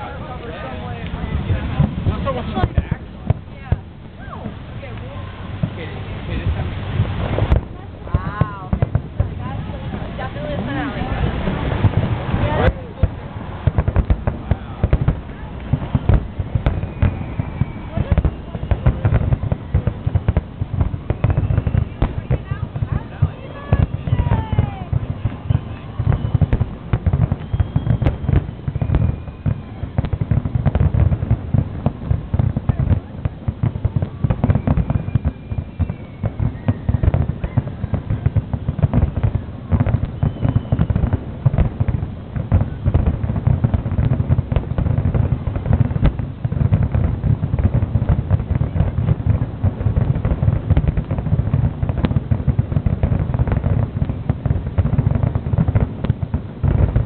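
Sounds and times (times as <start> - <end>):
faint firework whistles: 0.0 - 57.0
fireworks bangs: 0.0 - 57.0.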